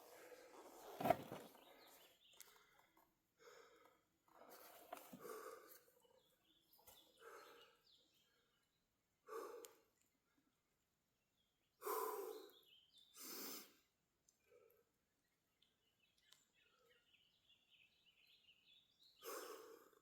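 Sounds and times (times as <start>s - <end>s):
man breathing hard: 2.5s - 4.1s, 5.1s - 5.9s, 7.1s - 7.9s, 9.2s - 9.9s, 11.8s - 12.5s, 19.2s - 20.0s.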